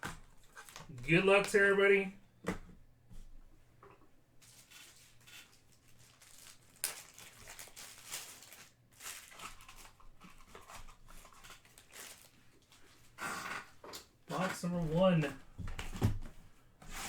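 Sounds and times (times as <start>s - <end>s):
plastic wrapping crinkling and tearing: 4.4s - 13.2s.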